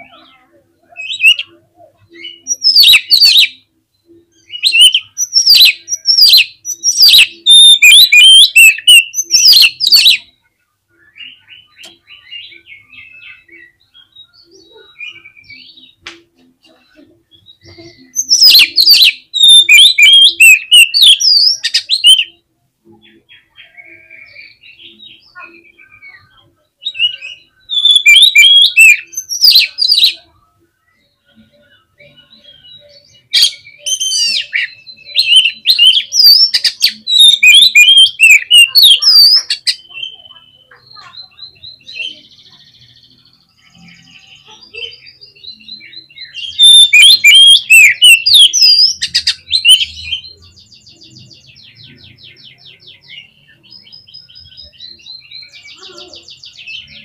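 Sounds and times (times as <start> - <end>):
bird singing whistles and chatter: 0.0 - 16.0, 16.8 - 22.4, 23.0 - 57.0.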